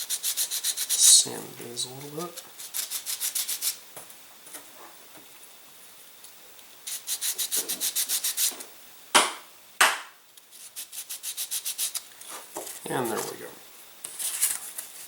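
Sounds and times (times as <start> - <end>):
hand sanding strokes: 0.0 - 1.3, 1.9 - 3.8, 6.9 - 8.5, 10.6 - 12.0.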